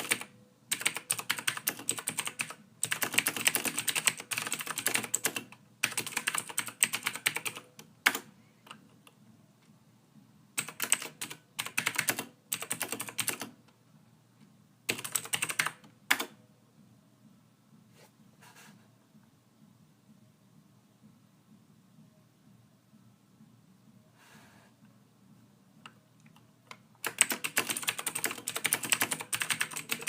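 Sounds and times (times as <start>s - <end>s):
typing on computer keyboard: 0.0s - 8.8s, 10.6s - 13.6s, 14.9s - 16.4s, 27.0s - 30.0s.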